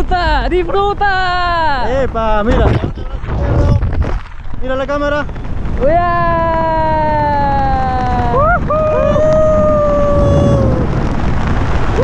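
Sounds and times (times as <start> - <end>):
wind rushing on microphone: 0.0 - 12.0
person yelling: 5.8 - 10.9
person whooping: 5.9 - 10.9.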